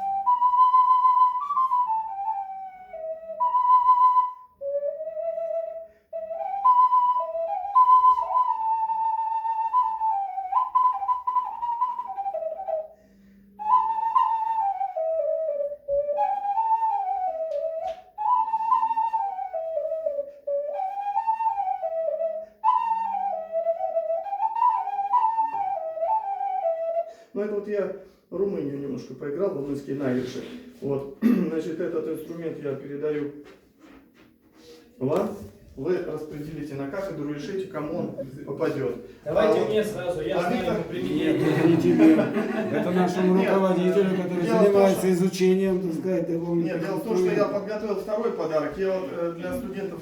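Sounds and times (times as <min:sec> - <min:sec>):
ocarina playing folk melody: 0:00.0 - 0:27.3, 0:37.1 - 0:48.1.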